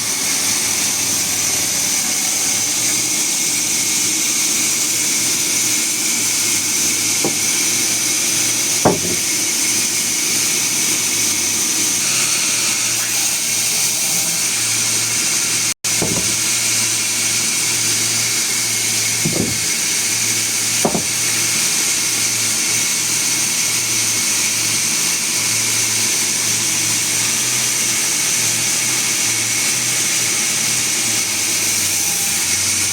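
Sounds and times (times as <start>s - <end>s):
sawmill machinery humming and hissing: 0.0s - 32.9s
sharp knocks: 7.2s - 8.0s, 8.8s - 9.4s, 15.9s - 16.6s, 19.2s - 19.8s, 20.8s - 21.4s.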